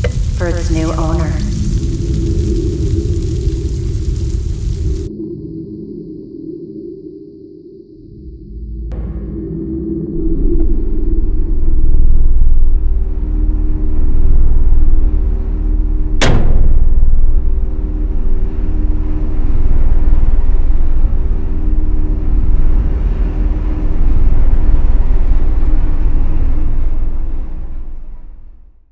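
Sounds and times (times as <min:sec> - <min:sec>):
deep rumbling drone: 0:00.0 - 0:28.8
sharp crack: 0:16.2 - 0:18.0.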